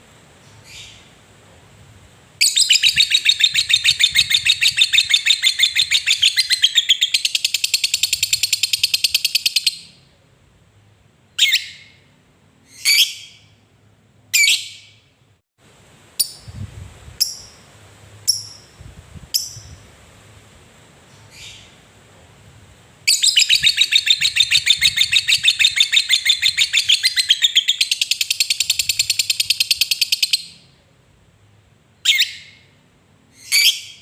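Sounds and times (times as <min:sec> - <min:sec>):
lovebird chattering trill: 0:02.4 - 0:09.9, 0:23.1 - 0:30.6.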